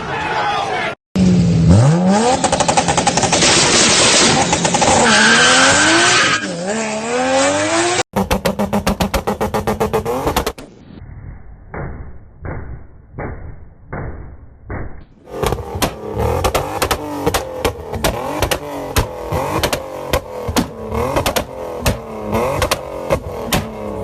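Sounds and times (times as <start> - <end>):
car engines revving: 1.2 - 10.6, 15.2 - 24.0
rapid sharp cracks: 15.3 - 23.8.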